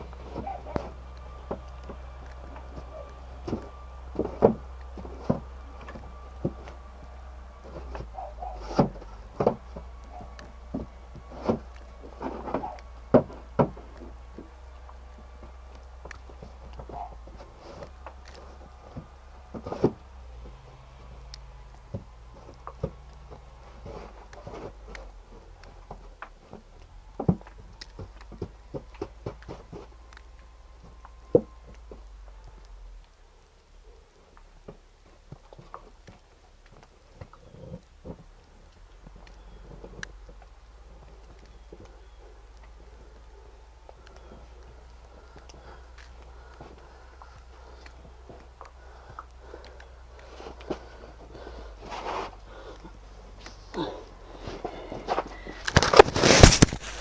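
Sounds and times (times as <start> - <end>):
steady low hum: 0.0 - 57.0
sharp knocks and clunks: 7.8 - 14.5
shovel crunching in snow: 55.7 - 57.0.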